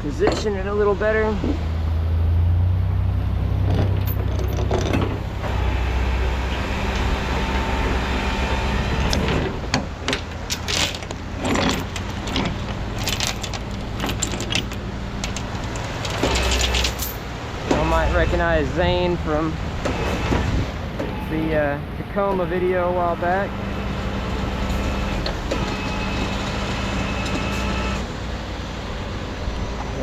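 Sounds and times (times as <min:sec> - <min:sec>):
tow truck engine running: 0:00.0 - 0:30.0
chain clinking and clanking: 0:00.2 - 0:00.7, 0:03.6 - 0:05.3, 0:10.0 - 0:18.4.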